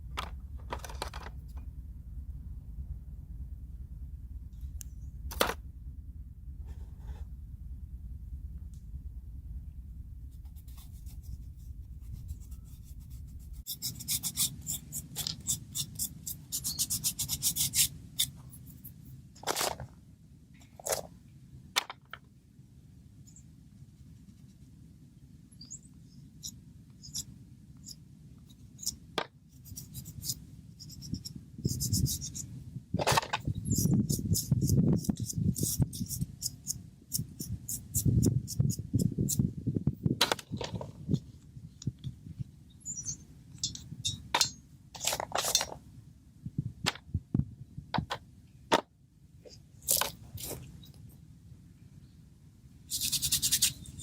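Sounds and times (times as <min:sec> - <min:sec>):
low steady rumble: 0:00.0 - 0:54.0
hands rustling and scraping materials: 0:10.4 - 0:20.0, 0:49.5 - 0:51.1, 0:52.9 - 0:54.0.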